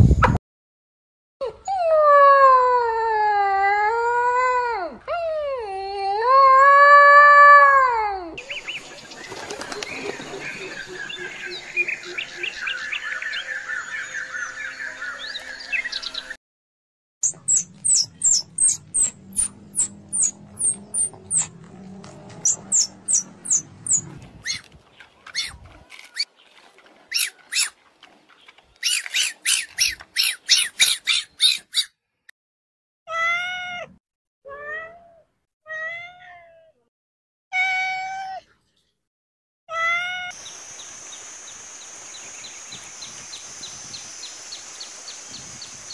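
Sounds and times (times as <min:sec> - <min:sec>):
birds chirping: 0:08.4 - 0:16.4, 0:17.2 - 0:31.9
cat meowing: 0:33.1 - 0:36.8, 0:37.5 - 0:38.5, 0:39.7 - 0:40.4.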